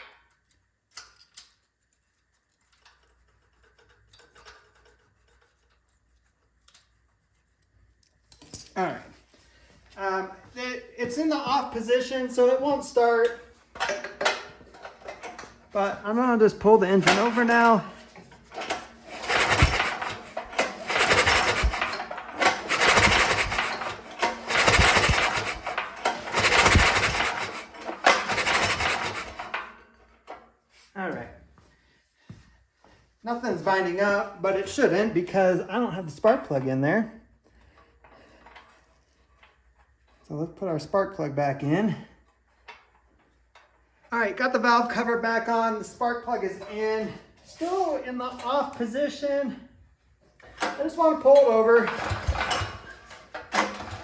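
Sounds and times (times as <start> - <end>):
metal-on-metal scraping: 1.2 - 9.6, 11.0 - 30.4
engine pull cord rasping whir: 16.8 - 29.7, 51.4 - 54.0.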